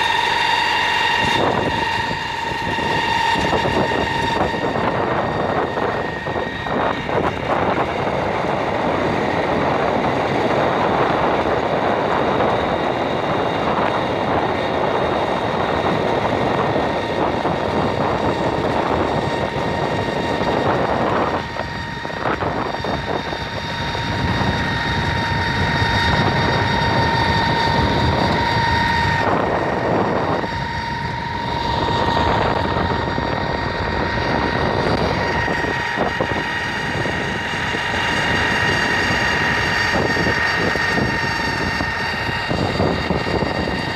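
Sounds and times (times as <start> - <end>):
garbage truck running: 0.0 - 43.9
high mechanical whine: 0.0 - 43.9.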